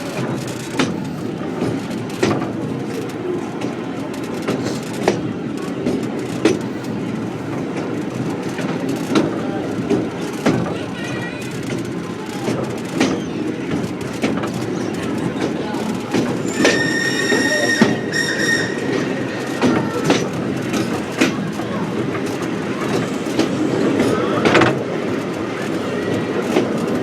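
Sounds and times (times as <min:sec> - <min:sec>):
train rumbling: 0:00.0 - 0:27.0
wheels knocking and clanking: 0:00.0 - 0:27.0
wavering squeal: 0:16.4 - 0:19.1.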